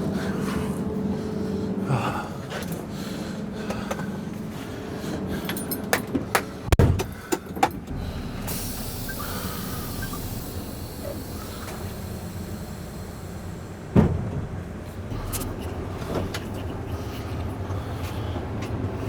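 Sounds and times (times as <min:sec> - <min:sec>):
heavy thud: 0:07.8 - 0:17.0
steady hiss: 0:08.2 - 0:14.0.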